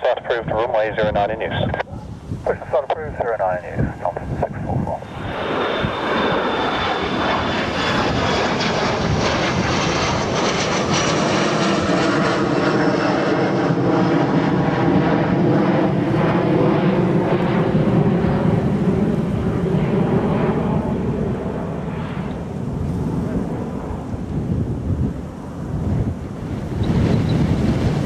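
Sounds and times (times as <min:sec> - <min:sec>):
jet engines rushing and whining: 0:00.0 - 0:28.0.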